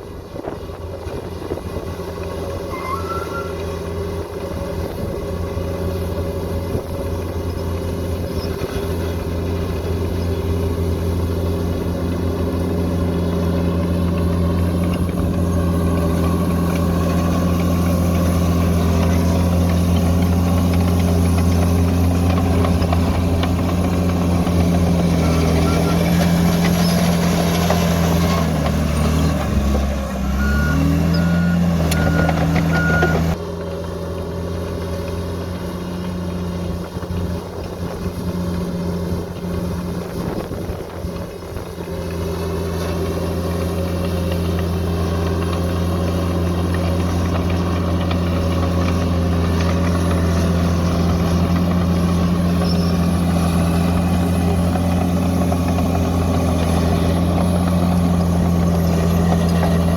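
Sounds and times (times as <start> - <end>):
bulldozer diesel engine working: 0.0 - 59.9
warning beeps: 2.7 - 3.9, 30.2 - 33.4.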